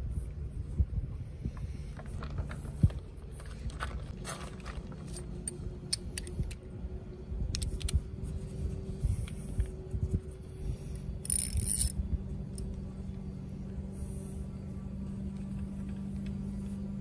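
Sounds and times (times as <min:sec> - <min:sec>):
steady low hum: 0:00.0 - 0:17.0
tools and metal parts clicking: 0:04.6 - 0:06.6, 0:11.2 - 0:12.7.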